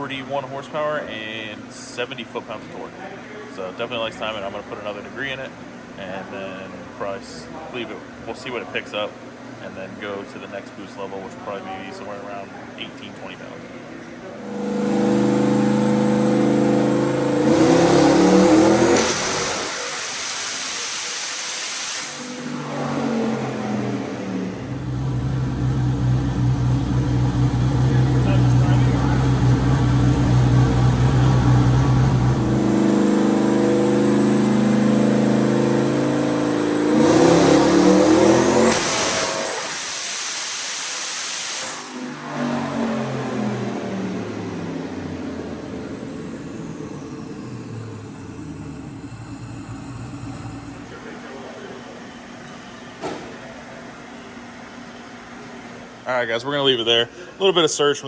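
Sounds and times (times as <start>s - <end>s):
turbocharged engine revving: 14.4s - 20.2s, 22.0s - 40.1s, 41.2s - 51.0s.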